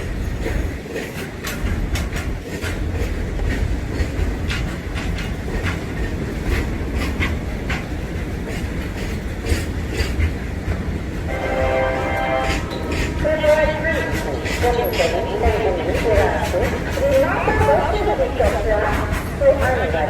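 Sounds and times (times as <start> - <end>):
train low rumble: 0.0 - 20.0
train wheels clacking on rails: 0.0 - 20.0.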